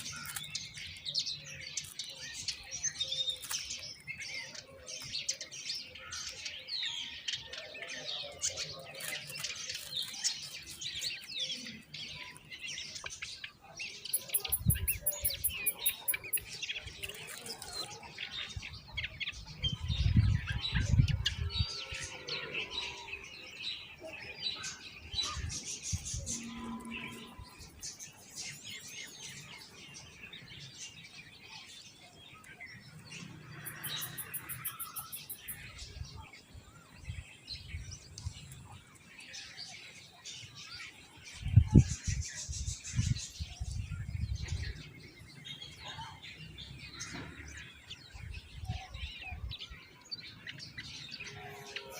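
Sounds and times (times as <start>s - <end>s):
birds chirping: 0.0s - 51.9s
mynas chirping: 14.1s - 16.5s, 33.6s - 35.6s.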